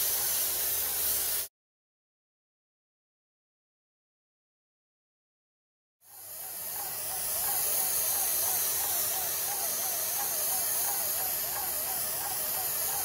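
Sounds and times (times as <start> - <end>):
spray gun hissing: 0.0 - 1.5, 6.1 - 13.0.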